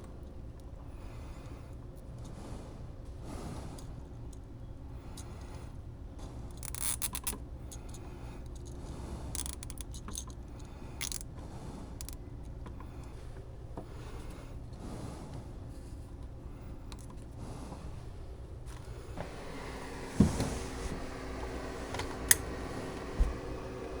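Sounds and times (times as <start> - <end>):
steady low hum: 7.4 - 24.0
scraping and rustling: 18.7 - 24.0.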